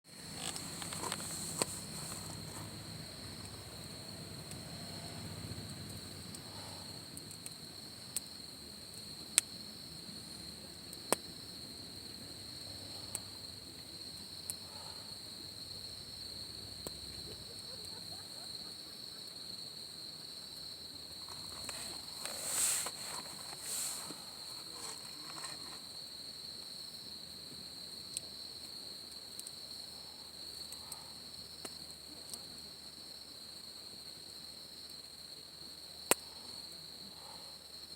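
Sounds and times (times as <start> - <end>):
campfire pops: 0.1 - 19.7, 20.4 - 29.8, 30.5 - 32.8, 36.0 - 36.6
rustle: 0.1 - 37.9
insect trilling: 0.2 - 8.3, 11.7 - 26.1.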